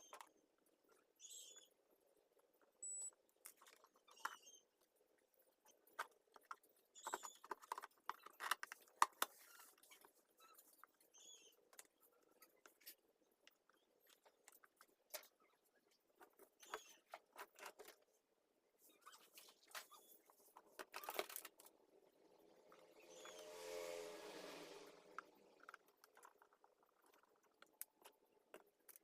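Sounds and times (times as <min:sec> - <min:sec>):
small parts and tools rattling: 0:05.6 - 0:15.4.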